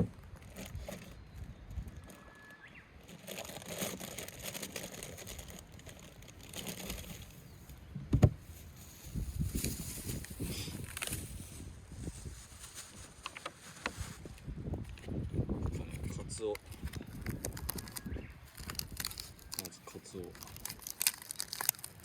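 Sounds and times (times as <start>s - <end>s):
rustling cooking gear: 0.3s - 15.2s
soft thuds: 8.0s - 8.5s.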